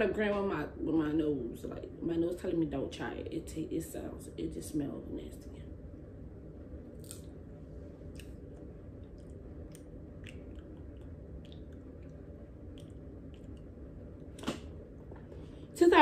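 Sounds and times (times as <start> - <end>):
person chewing popcorn: 7.0 - 7.4, 8.0 - 14.3.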